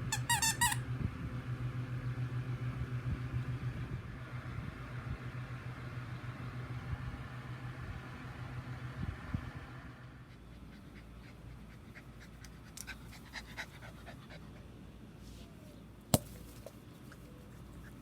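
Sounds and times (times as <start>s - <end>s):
small dog panting: 10.2s - 14.8s.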